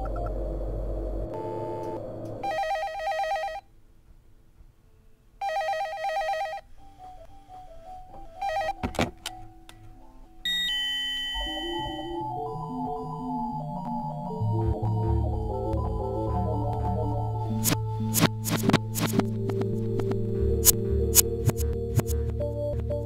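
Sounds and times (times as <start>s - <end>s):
desk telephone ringing: 2.4s - 3.6s, 5.4s - 6.6s
music: 4.6s - 23.0s.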